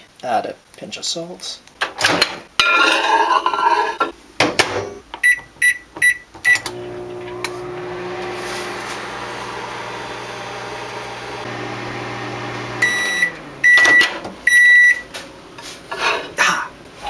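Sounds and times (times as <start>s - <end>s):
microwave oven humming: 6.5s - 15.6s.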